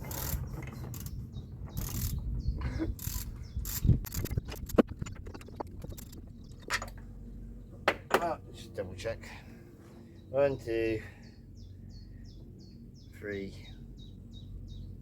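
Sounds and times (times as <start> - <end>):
ratchet wrench clicking: 0.0 - 1.2, 1.8 - 2.2, 3.0 - 4.8.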